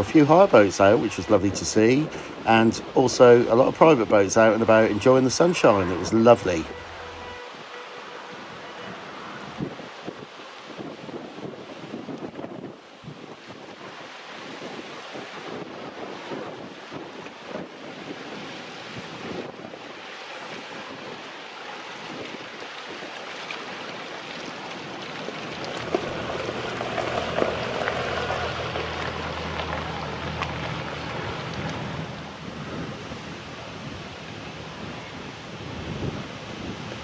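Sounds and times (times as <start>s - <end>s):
boat engine hum: 0.0s - 10.1s, 23.6s - 35.7s
river water lapping: 0.0s - 11.9s, 12.8s - 37.0s
wind buffeting microphone: 8.3s - 21.2s, 24.0s - 37.0s.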